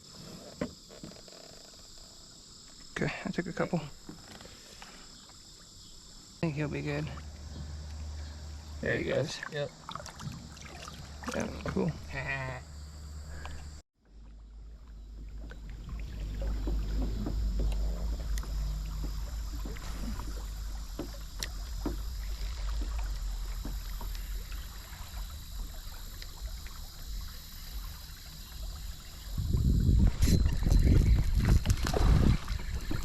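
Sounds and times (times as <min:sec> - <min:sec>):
water splashes against kayak hull: 0:09.2 - 0:12.1, 0:15.2 - 0:33.0
steady low rumble: 0:14.1 - 0:33.0.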